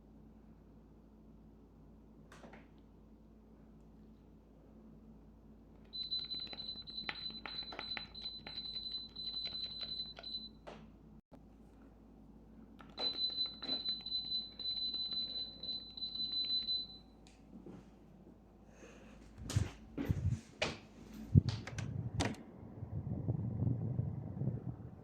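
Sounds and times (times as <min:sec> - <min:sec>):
air conditioner unit whining: 0:00.0 - 0:25.0.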